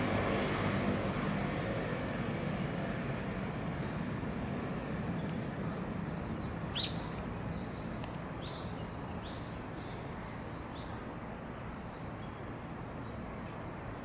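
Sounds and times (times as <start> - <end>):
bird chirping: 6.4 - 11.0.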